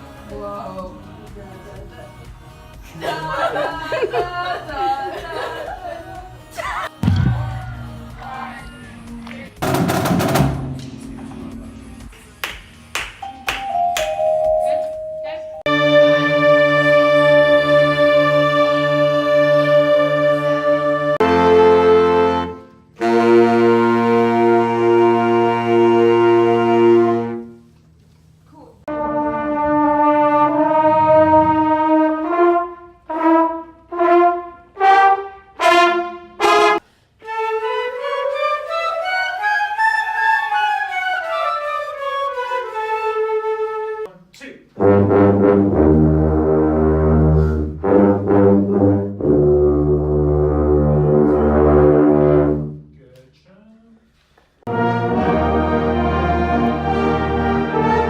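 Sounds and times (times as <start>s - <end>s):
marching band brass playing: 9.6s - 12.3s, 15.7s - 27.7s, 28.9s - 38.8s, 44.8s - 52.9s, 54.7s - 58.0s.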